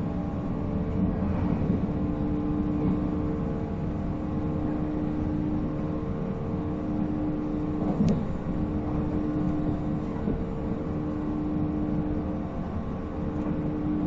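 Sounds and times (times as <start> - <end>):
wheels rumbling on rail: 0.0 - 14.0.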